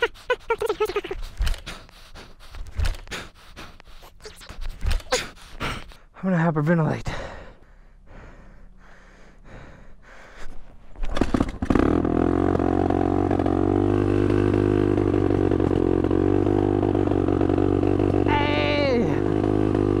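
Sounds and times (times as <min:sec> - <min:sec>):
faint effort sounds: 0:00.0 - 0:06.1
dirt bike engine starting: 0:00.6 - 0:03.4, 0:11.0 - 0:20.0.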